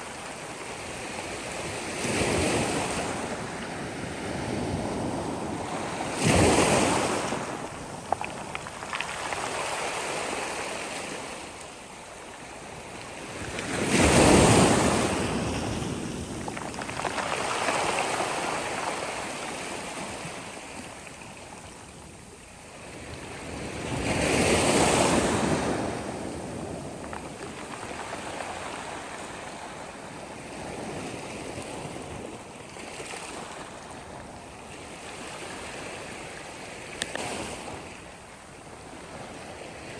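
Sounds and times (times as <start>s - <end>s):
big waves breaking: 0.0s - 11.6s, 12.9s - 21.2s
surf washing and hissing: 0.0s - 30.6s.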